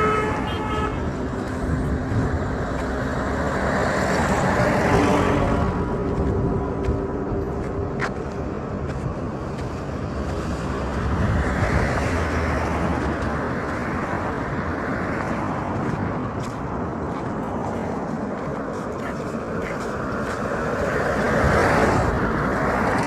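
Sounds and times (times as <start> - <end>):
background traffic rush: 0.0 - 23.0
vehicle passing close by: 0.0 - 23.0.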